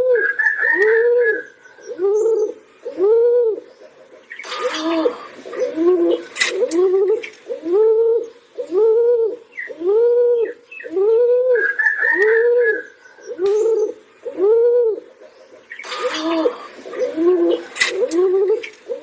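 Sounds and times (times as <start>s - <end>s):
pigeon cooing: 0.0s - 19.0s
higher bird warble: 4.3s - 8.8s, 11.5s - 19.0s.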